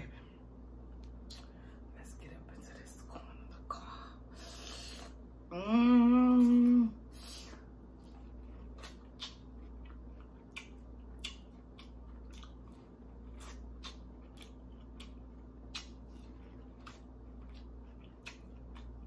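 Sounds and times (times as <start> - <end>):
steady low hum: 0.0 - 19.0
wet mouth sounds: 6.2 - 12.7, 13.3 - 19.0
corn on the cob being chewed: 8.0 - 19.0.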